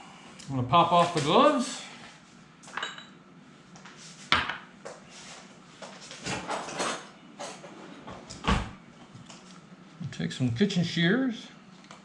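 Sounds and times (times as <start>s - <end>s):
kitchenware clinking and clattering: 2.7s - 3.2s, 6.2s - 7.8s.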